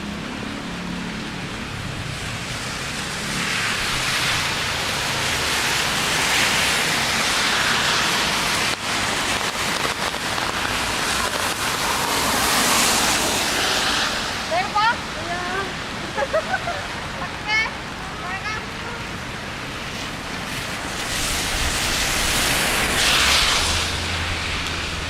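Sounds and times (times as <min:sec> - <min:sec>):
low traffic rumble: 0:00.0 - 0:25.0
rain hiss on wet street: 0:00.0 - 0:25.0
raindrops ticking nearby: 0:04.1 - 0:17.7, 0:18.3 - 0:25.0.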